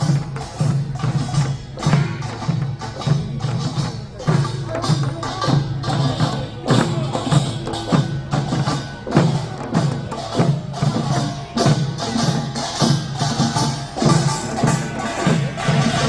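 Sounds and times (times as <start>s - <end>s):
drums and small gongs: 0.0s - 16.0s.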